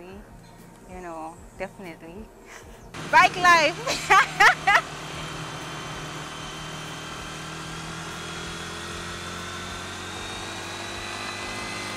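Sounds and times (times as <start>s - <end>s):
motorcycle engine running: 3.0s - 11.9s.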